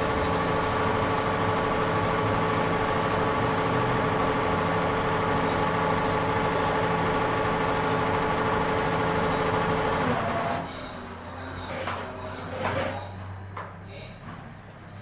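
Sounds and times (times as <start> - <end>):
embroidery machine humming: 0.0 - 11.0.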